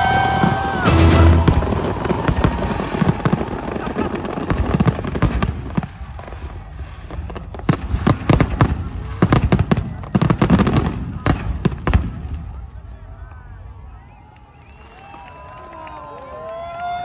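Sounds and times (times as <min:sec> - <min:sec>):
fireworks cracks and pops: 0:01.4 - 0:12.2.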